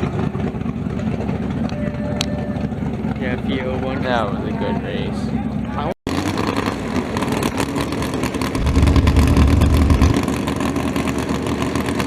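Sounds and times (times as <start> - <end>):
drag racing engine running hard: 6.1 - 12.0.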